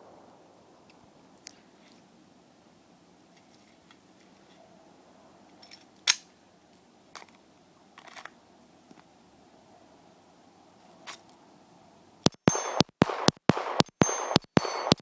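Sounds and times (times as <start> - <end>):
metallic clicks of pistol handling: 5.5 - 6.3.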